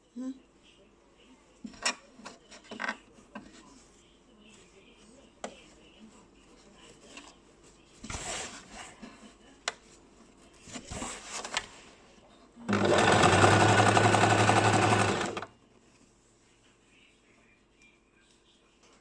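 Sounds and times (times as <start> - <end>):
electric sewing machine stitching: 12.7 - 15.5.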